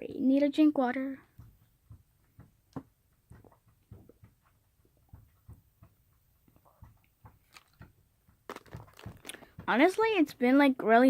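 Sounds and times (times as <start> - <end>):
water container being handled: 4.9 - 10.1.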